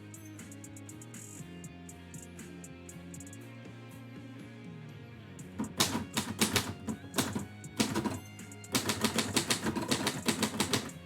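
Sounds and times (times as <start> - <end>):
background music: 0.0 - 11.0
typewriter keys striking: 5.6 - 11.0.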